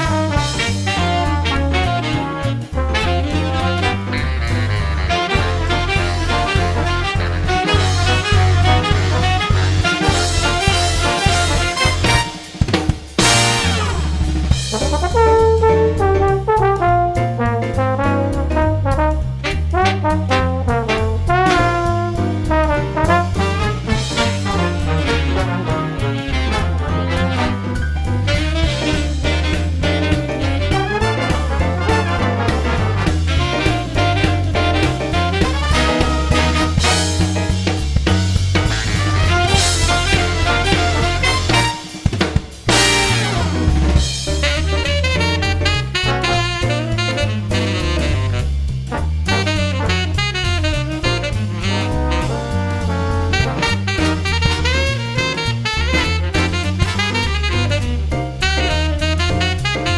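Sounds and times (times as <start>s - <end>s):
drum kit: 0.0s - 59.9s
upbeat swing jazz with brass: 0.0s - 59.9s
walking bass: 0.0s - 59.9s
saxophone melody: 3.2s - 12.4s, 28.6s - 32.5s, 33.3s - 37.2s, 38.7s - 41.9s, 42.7s - 48.5s, 49.3s - 52.3s, 53.3s - 59.9s.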